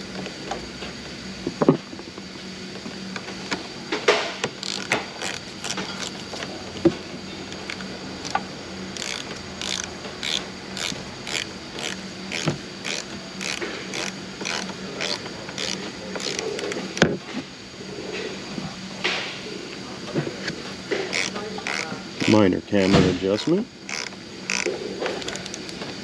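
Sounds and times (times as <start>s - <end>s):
ratchet wrench clicking: 4.5s - 6.3s, 7.5s - 17.0s, 21.1s - 22.4s, 23.4s - 25.7s.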